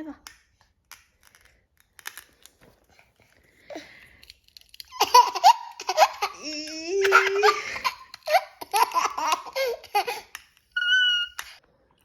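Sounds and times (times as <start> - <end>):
child squealing with laughter: 10.8 - 11.5.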